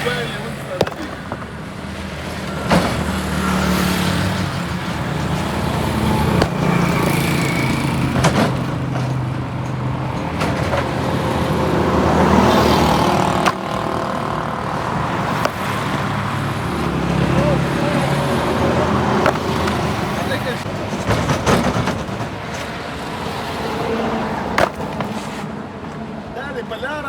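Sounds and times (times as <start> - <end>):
engine running: 0.0 - 22.2
sharp knocks: 13.0 - 14.2.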